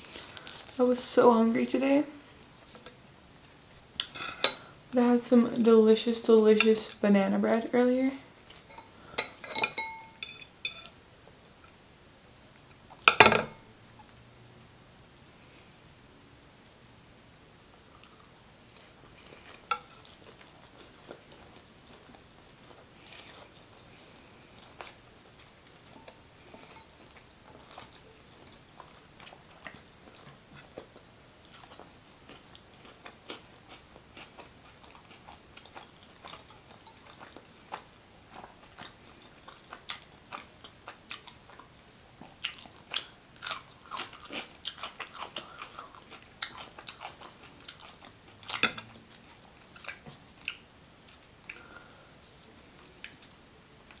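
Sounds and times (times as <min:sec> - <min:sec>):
wet chewing: 0:24.6 - 0:51.7.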